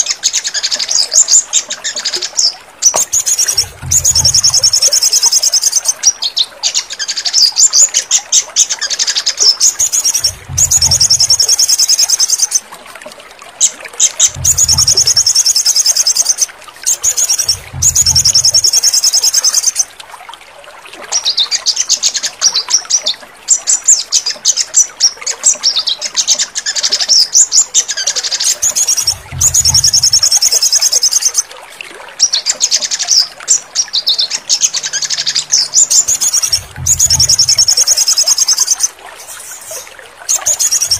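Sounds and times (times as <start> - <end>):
bird trilling song: 0.0 - 12.6, 14.0 - 19.9, 25.6 - 31.5, 32.2 - 40.9
low thumps: 3.5 - 4.6, 10.1 - 11.4, 14.3 - 15.3, 17.5 - 18.5, 29.1 - 30.3, 36.4 - 37.7.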